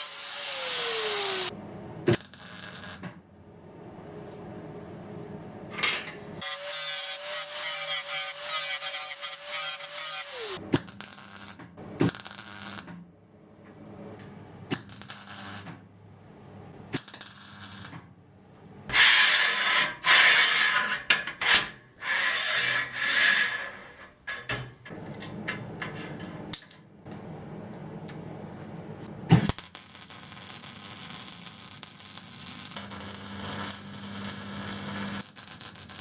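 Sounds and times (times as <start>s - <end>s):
scraping strokes on steel: 18.9s - 24.7s.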